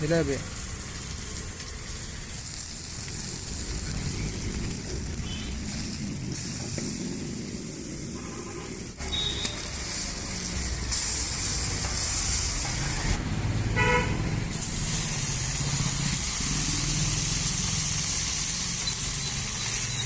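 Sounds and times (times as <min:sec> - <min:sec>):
oil sizzling: 0:00.0 - 0:20.0
traffic rumble: 0:00.0 - 0:20.0
vehicle horn toot: 0:05.2 - 0:05.6, 0:08.2 - 0:09.6, 0:13.8 - 0:14.2.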